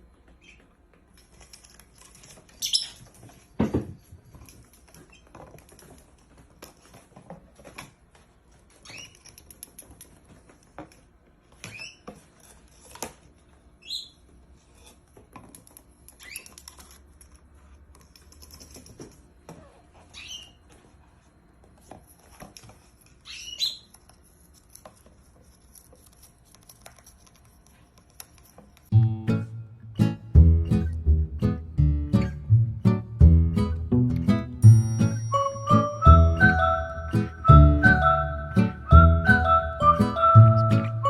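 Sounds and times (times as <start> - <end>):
small bird chirping: 2.6 - 3.0, 13.8 - 14.3, 20.1 - 20.6, 23.2 - 23.9.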